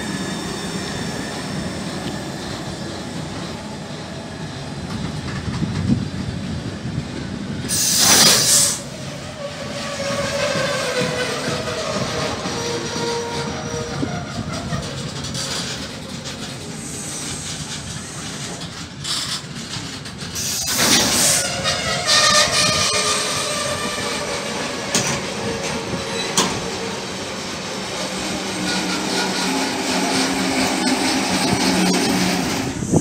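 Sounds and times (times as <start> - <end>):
freight train wheels clattering: 0.0 - 33.0.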